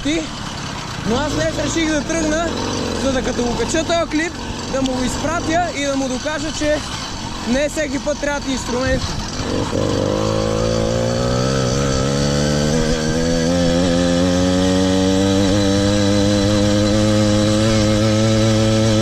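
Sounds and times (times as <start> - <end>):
motorized bicycle engine running: 0.1 - 19.0.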